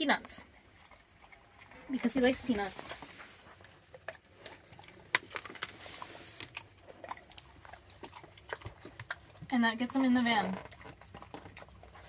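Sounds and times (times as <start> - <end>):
dog crunching peanuts: 3.4 - 12.0.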